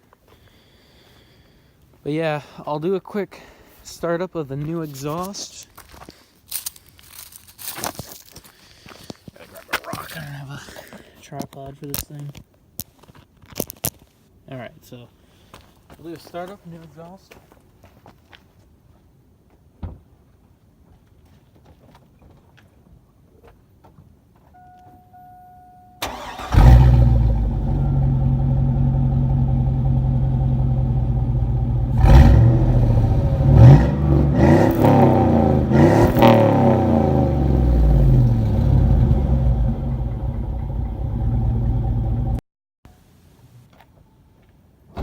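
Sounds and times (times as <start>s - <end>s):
warning tone: 24.5s - 26.0s, 27.7s - 28.5s
engine cranking: 26.0s - 28.6s
engine idling and revving: 26.0s - 42.4s.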